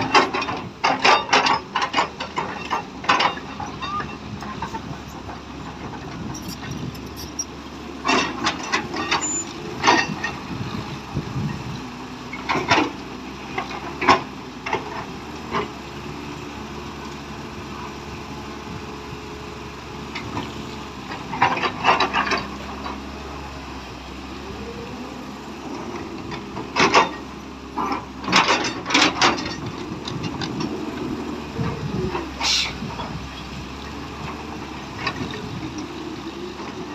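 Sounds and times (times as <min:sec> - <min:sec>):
sharp metal clanks and knocks: 0:00.0 - 0:04.7
excavator diesel engine running: 0:00.0 - 0:36.9.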